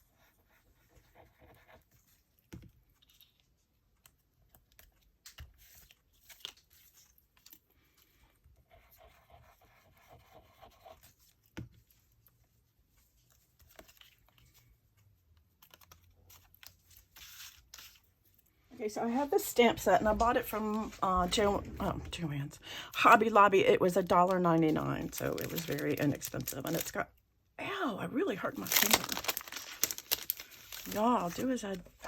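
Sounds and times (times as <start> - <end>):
paper rustling and scraping: 15.6 - 18.1, 24.0 - 27.0, 28.4 - 32.0.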